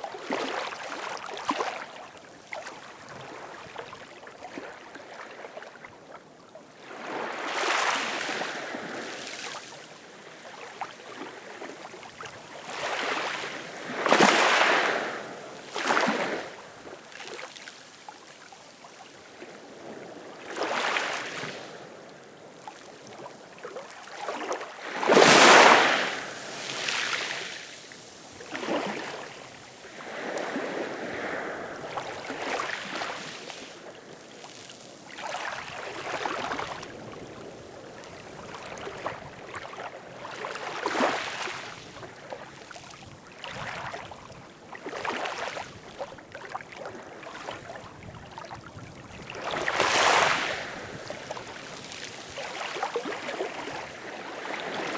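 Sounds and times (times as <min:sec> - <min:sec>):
ocean waves washing in: 0:25.0 - 0:34.1.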